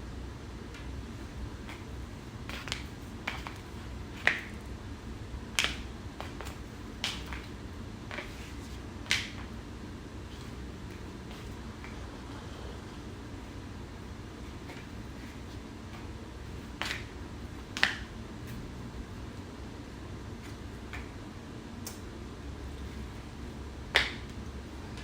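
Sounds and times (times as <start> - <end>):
flip-flop slapping against foot: 1.7 - 4.6, 5.6 - 9.5, 16.7 - 18.1, 23.9 - 24.4.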